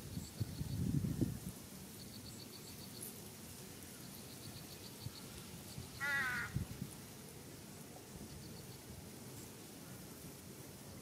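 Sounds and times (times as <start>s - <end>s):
harsh crow-like bird call: 6.0s - 6.6s.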